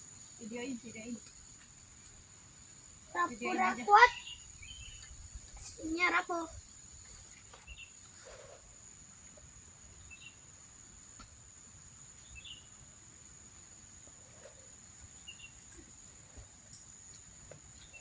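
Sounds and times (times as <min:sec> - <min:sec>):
insects droning: 0:00.0 - 0:18.0
bird chirps: 0:04.0 - 0:05.8, 0:07.5 - 0:08.5, 0:10.0 - 0:10.4, 0:12.2 - 0:12.7, 0:15.1 - 0:15.9.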